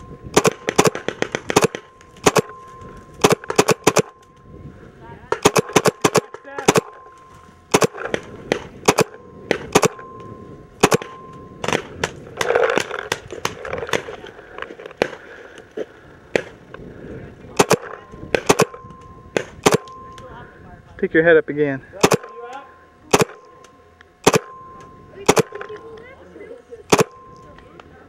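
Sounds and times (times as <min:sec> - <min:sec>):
paintball markers firing: 0:00.3 - 0:02.6, 0:03.2 - 0:04.2, 0:05.4 - 0:07.0, 0:07.7 - 0:10.0, 0:10.8 - 0:11.1, 0:17.5 - 0:18.8, 0:19.4 - 0:20.0, 0:22.0 - 0:22.3, 0:23.1 - 0:23.4, 0:24.2 - 0:24.5, 0:25.3 - 0:26.0, 0:26.9 - 0:27.2.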